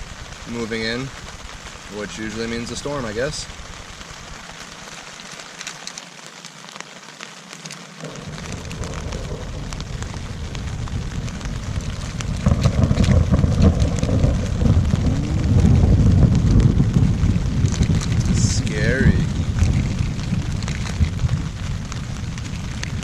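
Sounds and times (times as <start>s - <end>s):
rain falling: 0.0s - 23.0s
raindrops pattering: 0.0s - 23.0s
deep thunder rumble: 8.0s - 23.0s.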